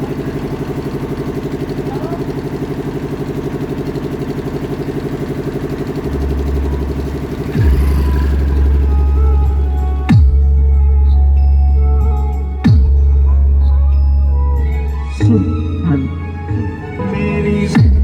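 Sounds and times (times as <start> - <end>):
engine running: 0.0 - 18.0
heavy bass from sound system: 4.6 - 18.0.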